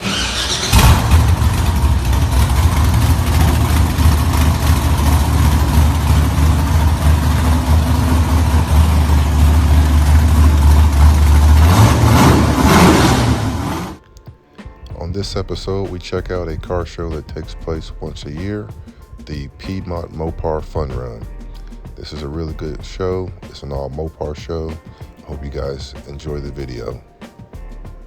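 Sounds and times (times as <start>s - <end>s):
car engine idling: 0.0s - 14.0s, 15.0s - 24.6s.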